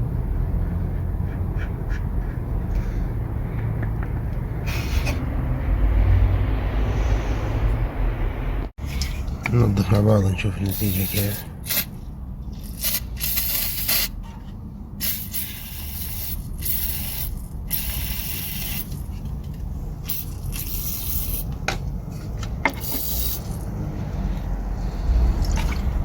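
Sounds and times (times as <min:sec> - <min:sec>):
spray can hissing: 0:10.7 - 0:12.0, 0:12.6 - 0:14.2, 0:15.0 - 0:19.0, 0:20.0 - 0:21.5, 0:22.7 - 0:23.7.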